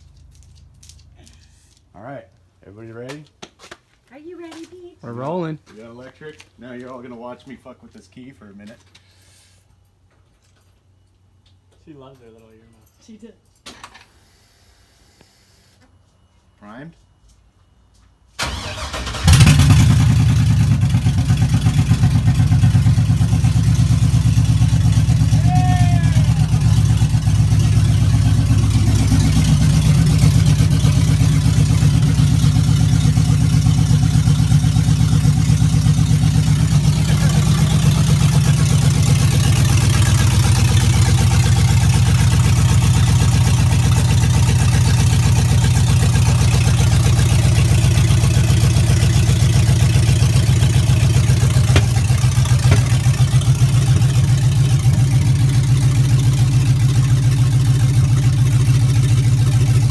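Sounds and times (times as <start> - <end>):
engine idling on open headers: 18.4 - 59.9.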